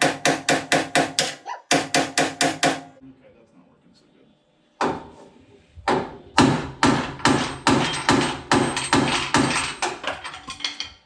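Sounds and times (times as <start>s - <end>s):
hammer blows on steel panel: 0.0s - 3.0s.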